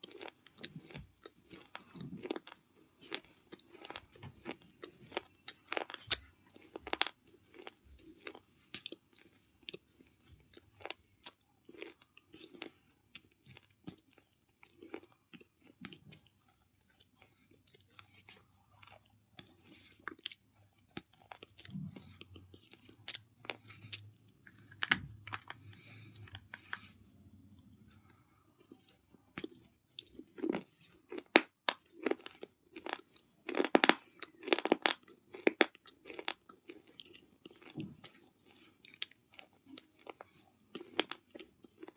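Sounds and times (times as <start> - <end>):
biting and chewing crunches: 0.0 - 27.0, 28.0 - 41.9.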